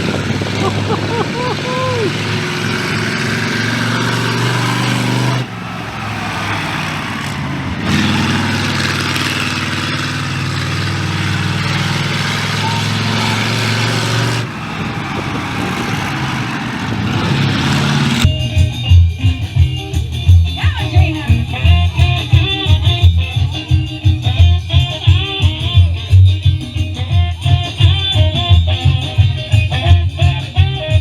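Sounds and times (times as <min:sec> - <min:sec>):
car engines running: 0:00.0 - 0:31.0
faint voices: 0:00.2 - 0:02.6, 0:12.1 - 0:17.4.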